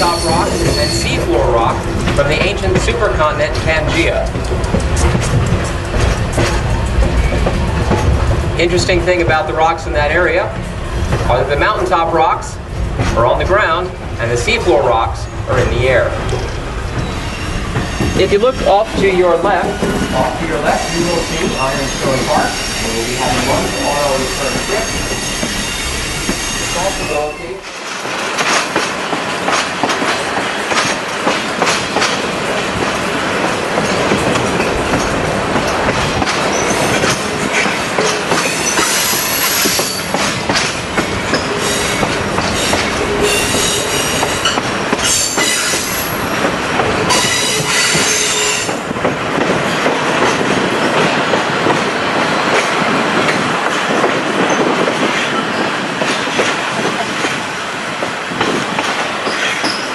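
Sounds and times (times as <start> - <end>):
metallic wheel squeal: 0.0 - 1.4, 16.3 - 18.9, 19.6 - 27.6, 47.1 - 48.7, 59.2 - 59.9
train rumbling on rails: 0.0 - 59.9.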